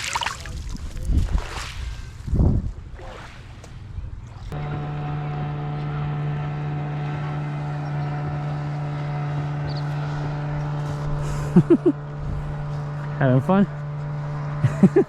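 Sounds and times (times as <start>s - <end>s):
steady motor hum: 3.7s - 15.0s.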